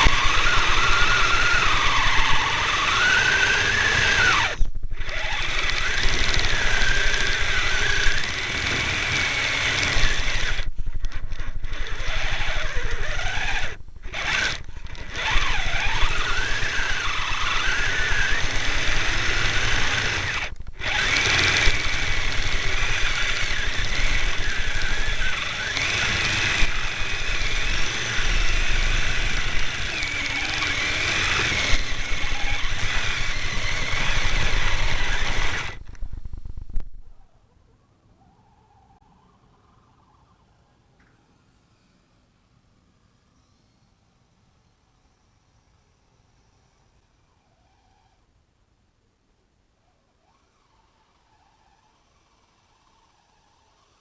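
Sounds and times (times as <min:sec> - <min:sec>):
electric motor whining: 0:00.0 - 0:37.3.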